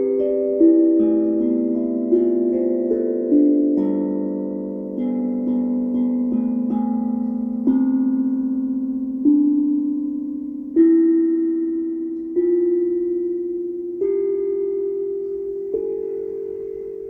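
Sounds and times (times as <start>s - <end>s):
steel tongue drum notes: 0.0s - 17.0s.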